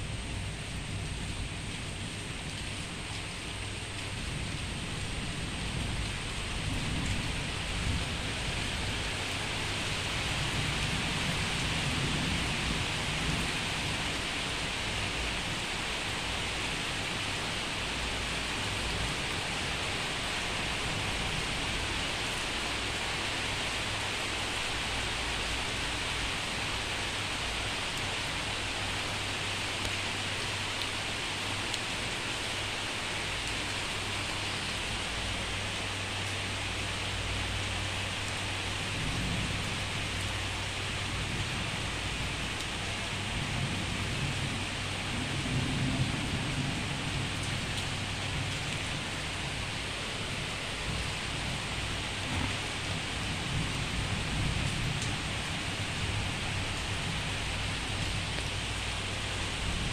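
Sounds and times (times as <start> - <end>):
heavy rain falling: 0.0 - 59.9
low thunder rumble: 4.0 - 15.6, 38.7 - 58.8.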